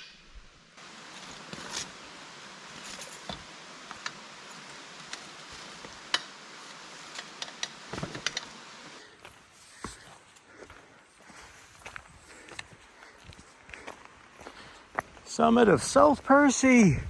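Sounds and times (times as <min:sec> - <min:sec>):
steady hiss: 0:00.0 - 0:09.8
footsteps on rocky trail: 0:00.8 - 0:16.4
gear rattling: 0:01.2 - 0:08.9.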